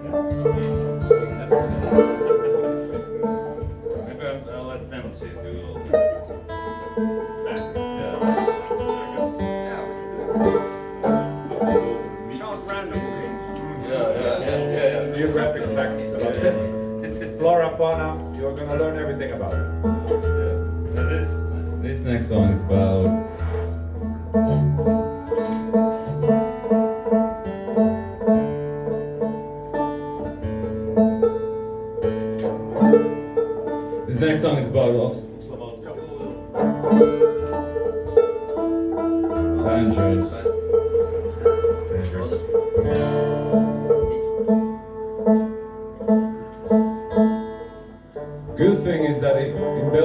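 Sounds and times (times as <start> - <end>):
banjo picking: 0.0 - 50.0.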